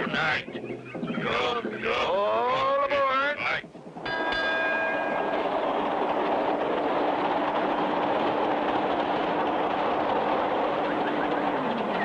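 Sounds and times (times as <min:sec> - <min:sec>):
trolley car rumbling on rails: 0:03.4 - 0:12.0
low hum: 0:03.6 - 0:12.0.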